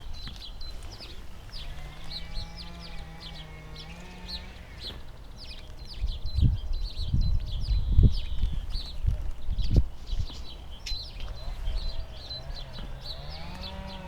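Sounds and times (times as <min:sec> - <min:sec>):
songbird chirping: 0:00.0 - 0:14.0
low thumps from wind or handling: 0:05.9 - 0:14.0.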